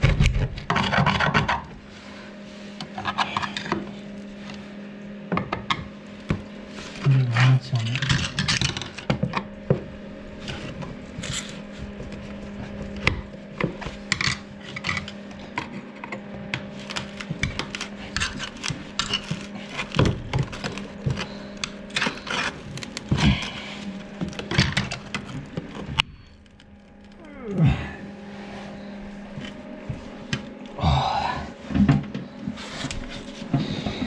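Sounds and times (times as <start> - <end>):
steady low hum: 0.0 - 34.0
hand tools knocking and scraping: 5.4 - 26.1.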